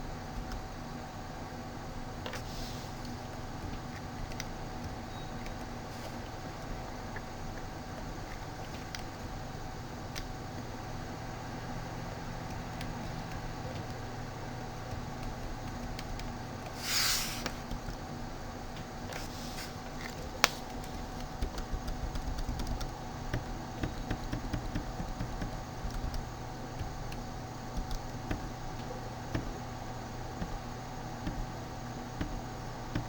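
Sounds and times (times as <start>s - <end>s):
computer hum: 0.0s - 33.0s
short hiss: 16.8s - 17.6s.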